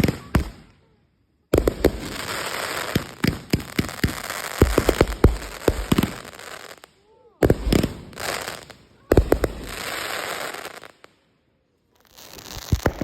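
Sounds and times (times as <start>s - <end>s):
fireworks bangs: 0.0s - 0.7s, 1.5s - 11.1s, 12.1s - 13.0s
fireworks crackling hiss: 0.0s - 0.8s, 1.4s - 13.0s.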